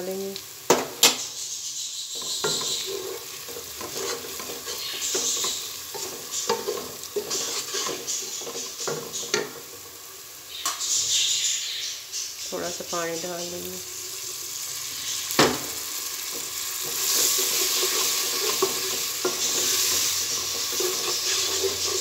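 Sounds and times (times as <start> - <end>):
masala sizzling in hot oil: 0.0 - 22.0
spatula scraping and knocking pot: 2.2 - 9.8, 16.2 - 22.0.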